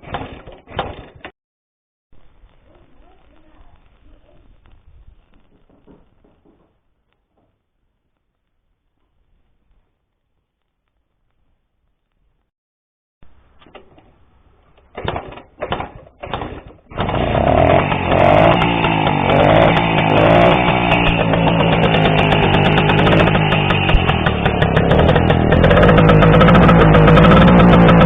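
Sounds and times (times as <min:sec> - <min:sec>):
two-stroke motorcycle engine: 0:14.8 - 0:28.0.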